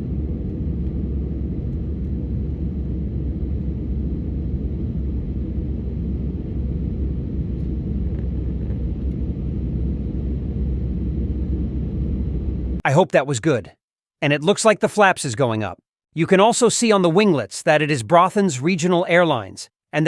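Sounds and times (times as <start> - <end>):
airplane cabin engine rumble: 0.0 - 12.8.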